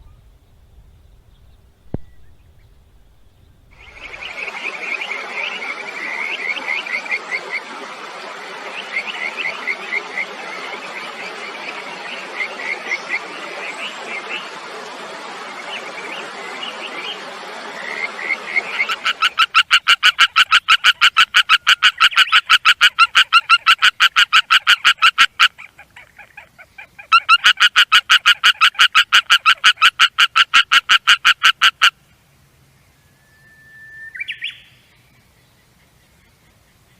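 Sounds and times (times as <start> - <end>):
background noise: 0.0 - 36.9
frogs chirping chorus: 3.7 - 7.6, 17.8 - 32.0
frog pulsed call: 3.7 - 7.7, 17.8 - 32.0.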